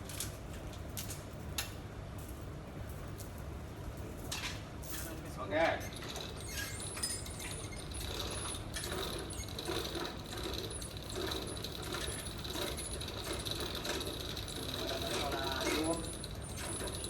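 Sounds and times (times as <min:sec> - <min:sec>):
machine rumble and whine: 0:00.0 - 0:17.0
repeated ratcheting clicks: 0:05.7 - 0:17.0.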